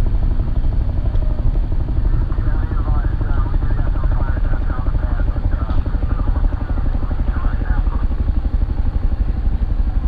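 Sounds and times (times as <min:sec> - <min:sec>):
rocket engines roaring with crackle: 0:00.0 - 0:10.0.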